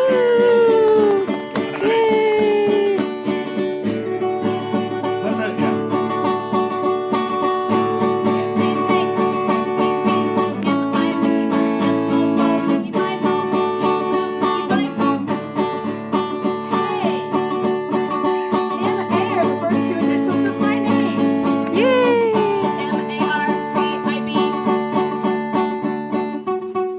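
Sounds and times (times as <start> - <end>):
strummed string music: 0.2 - 26.9.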